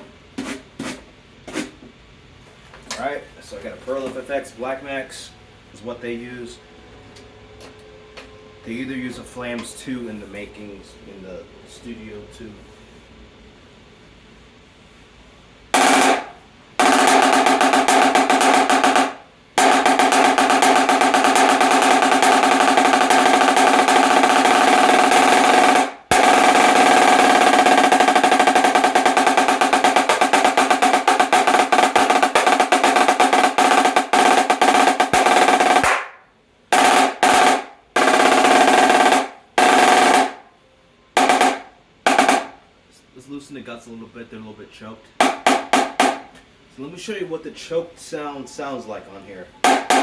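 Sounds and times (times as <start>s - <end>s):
snare drum rolls: 15.8s - 40.4s, 41.2s - 42.6s, 45.2s - 46.3s, 49.6s - 50.0s.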